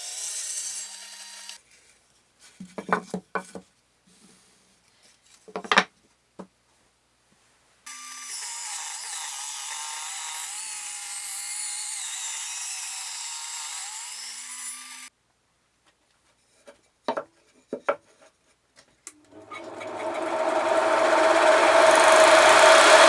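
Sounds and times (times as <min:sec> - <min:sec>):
power tool cutting wood: 0:00.0 - 0:01.6, 0:07.9 - 0:15.1, 0:19.3 - 0:23.0.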